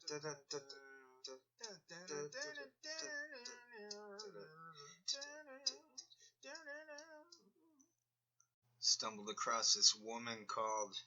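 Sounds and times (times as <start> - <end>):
person singing quietly: 0.0 - 7.6.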